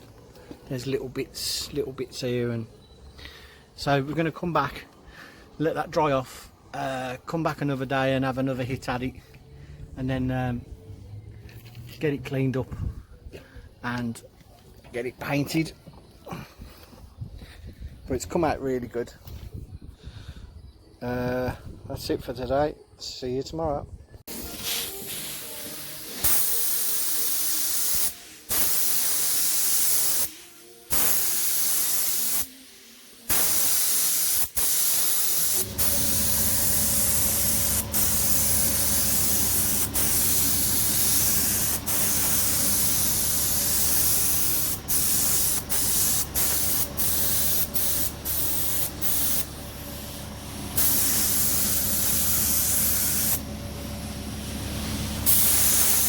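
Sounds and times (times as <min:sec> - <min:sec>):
high-pressure spray hissing: 0:24.3 - 0:56.0
motor running: 0:35.6 - 0:45.3, 0:46.2 - 0:55.6.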